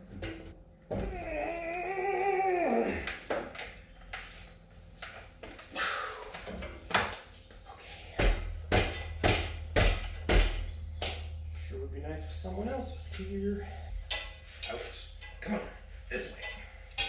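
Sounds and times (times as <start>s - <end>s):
low thumps: 8.2s - 17.0s
wavering high whine: 10.1s - 17.0s.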